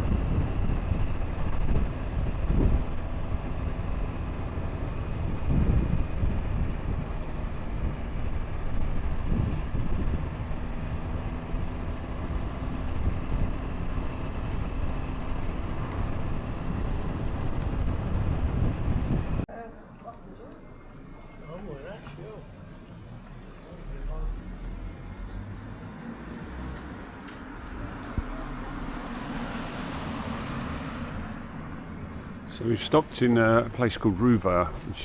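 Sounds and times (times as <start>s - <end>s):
motorcycle engine droning: 0.0s - 19.5s
wind buffeting microphone: 0.0s - 19.5s.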